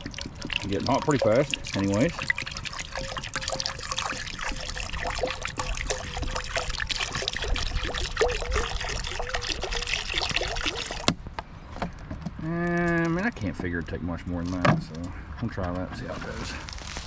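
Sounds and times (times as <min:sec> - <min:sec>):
water pouring into a pot: 0:00.0 - 0:11.1.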